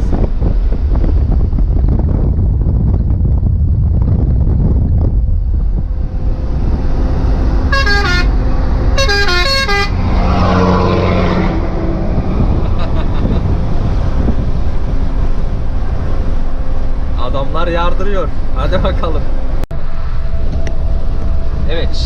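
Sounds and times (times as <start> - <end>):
road noise: 0.0 - 22.0
truck engine: 0.0 - 22.0
loud rushing noise: 5.0 - 9.0, 9.8 - 18.7
musical horn tune: 7.6 - 10.1.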